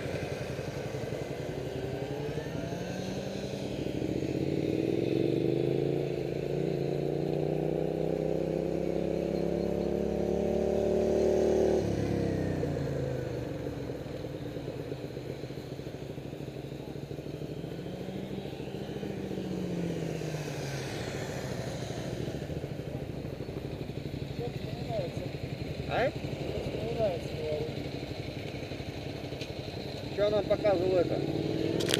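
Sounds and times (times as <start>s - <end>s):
motorcycle engine accelerating: 0.0s - 31.9s.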